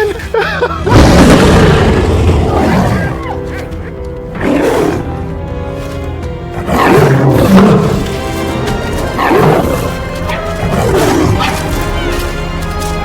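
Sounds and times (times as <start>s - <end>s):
orchestral film music: 0.0s - 13.0s
lion roaring: 0.9s - 3.4s, 4.4s - 5.3s, 6.5s - 12.1s.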